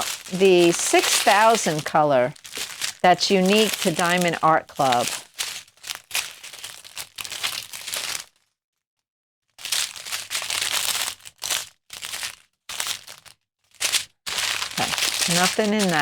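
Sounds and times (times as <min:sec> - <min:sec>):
plastic packets crinkling: 0:00.0 - 0:08.0, 0:14.0 - 0:16.0.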